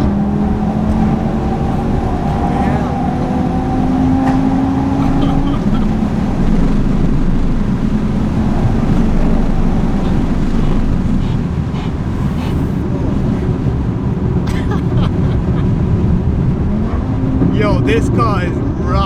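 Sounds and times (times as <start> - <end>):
car engine drone from cabin: 0.0 - 18.6
road noise: 0.0 - 19.0
wind noise: 0.0 - 19.0.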